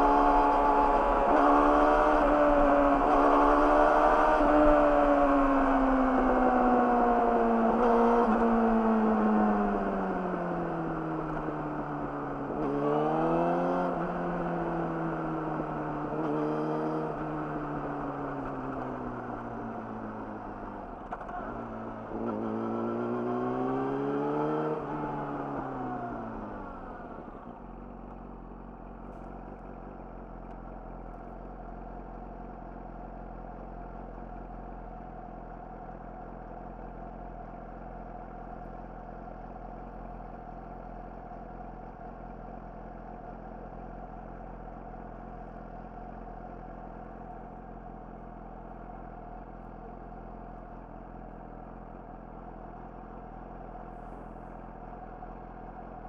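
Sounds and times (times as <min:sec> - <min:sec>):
motorcycle engine revving: 0:21.1 - 0:26.4.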